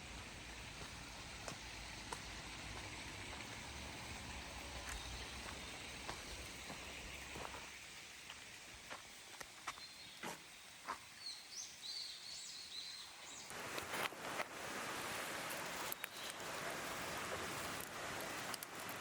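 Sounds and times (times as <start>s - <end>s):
steady hiss: 0.0s - 19.0s
bird chirping: 4.6s - 7.6s, 9.2s - 13.5s
campfire crackling and popping: 13.5s - 19.0s.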